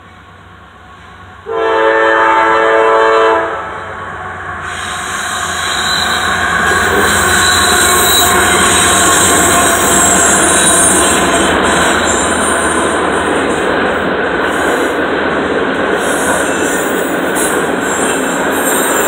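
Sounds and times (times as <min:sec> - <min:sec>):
diesel locomotive passing: 0:00.0 - 0:19.0
rail cars rolling on rails: 0:00.0 - 0:19.0.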